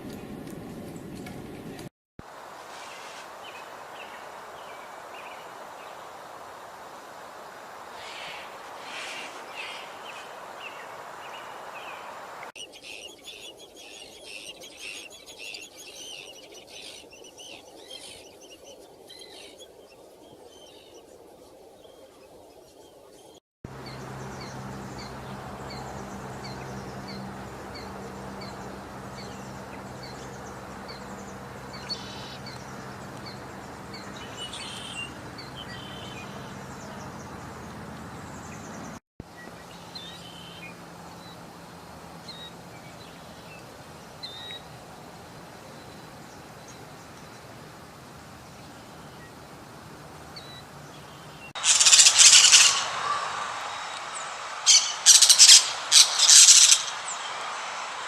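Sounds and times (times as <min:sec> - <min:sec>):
small birds chirping: 0:07.4 - 0:58.0
steady low hum: 0:23.7 - 0:46.3
loud harsh burst: 0:51.6 - 0:58.0.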